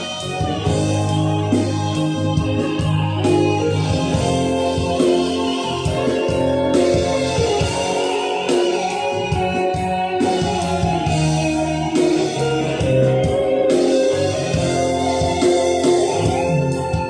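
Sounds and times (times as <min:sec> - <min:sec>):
pop ballad over loudspeakers: 0:00.0 - 0:17.0.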